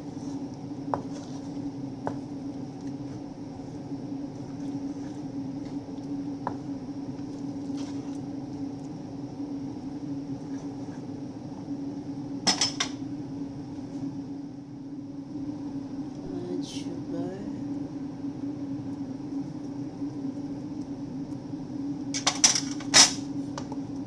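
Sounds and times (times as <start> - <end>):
low appliance hum: 0.0 - 24.0
kitchenware clinking: 12.5 - 13.0.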